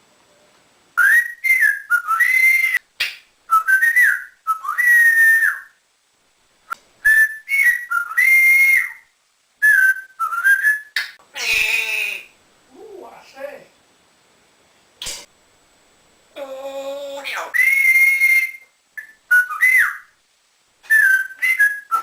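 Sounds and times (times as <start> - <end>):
parrot whistling a tune: 1.0 - 2.8, 3.5 - 5.8, 7.0 - 12.2, 17.5 - 20.2, 20.8 - 22.0.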